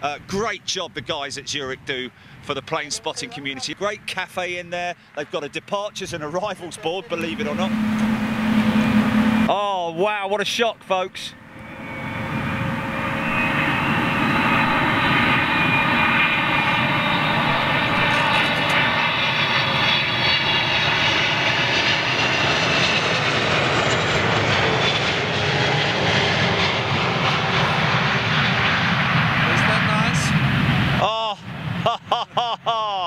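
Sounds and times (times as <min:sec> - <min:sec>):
jet airliner passing overhead: 0:00.0 - 0:32.8.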